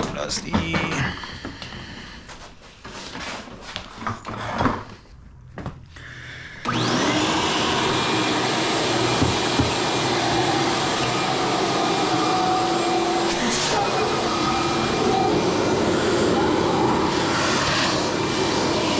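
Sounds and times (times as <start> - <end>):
knocks and clatter of handling: 0.0 - 1.6
vacuum cleaner motor whining: 6.6 - 18.9.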